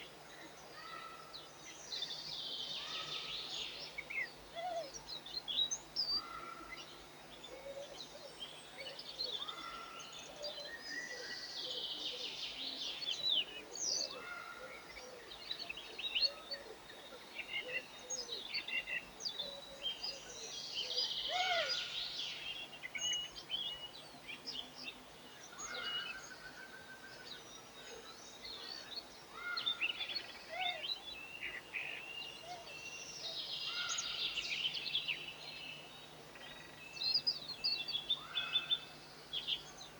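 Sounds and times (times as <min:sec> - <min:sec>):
birds chirping and singing: 0:20.8 - 0:39.9.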